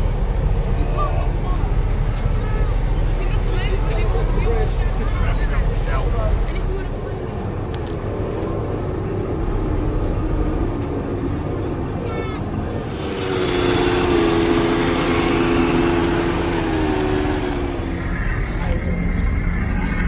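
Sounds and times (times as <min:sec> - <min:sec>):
motor whine: 0:12.6 - 0:20.0.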